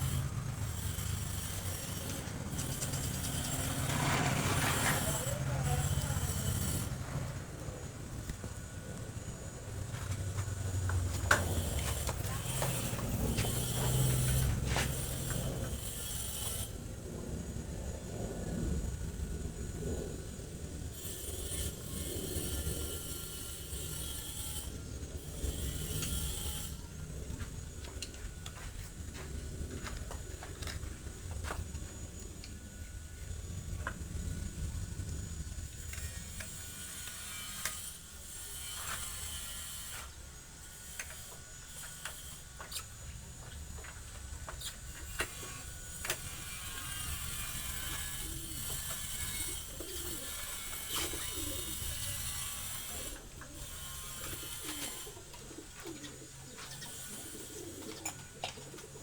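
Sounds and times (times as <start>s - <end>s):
hand tools clicking and clinking: 1.0s - 7.0s
pigeons cooing: 45.3s - 59.0s.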